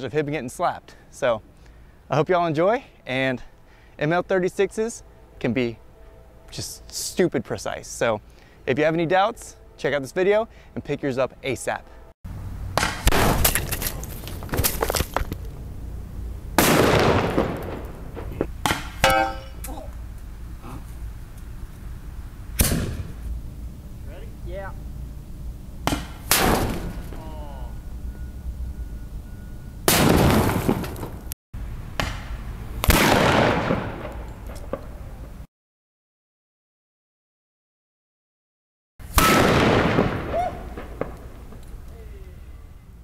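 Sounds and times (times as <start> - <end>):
loud pop with air rush: 12.8 - 13.5, 16.6 - 19.0, 22.6 - 23.1, 25.8 - 27.1, 29.9 - 30.8, 32.0 - 34.2, 39.1 - 41.3
airsoft grenade launcher firing: 16.6 - 17.9, 22.6 - 23.1, 25.9 - 27.2, 29.9 - 31.1, 32.8 - 34.3, 39.1 - 41.2.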